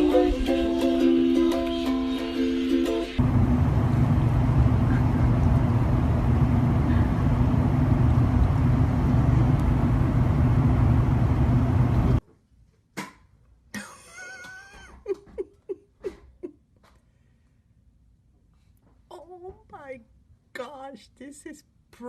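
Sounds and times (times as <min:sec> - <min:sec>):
low rumble with hum: 0:03.2 - 0:12.2.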